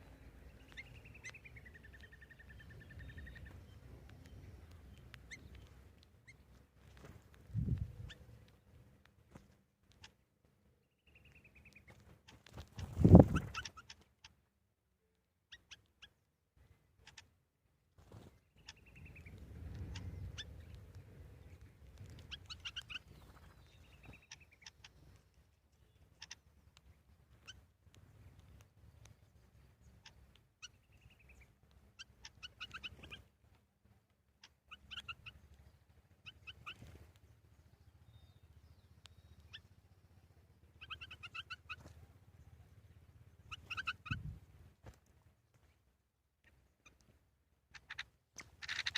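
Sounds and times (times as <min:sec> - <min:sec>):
trilled bird call: 0:00.0 - 0:04.4, 0:12.7 - 0:14.4, 0:22.2 - 0:25.2, 0:25.8 - 0:26.6, 0:29.8 - 0:33.3, 0:34.4 - 0:37.0, 0:38.0 - 0:44.4, 0:47.7 - 0:48.9
faint low rumble: 0:00.0 - 0:13.8, 0:16.5 - 0:47.8
small birds chirping: 0:00.0 - 0:48.9.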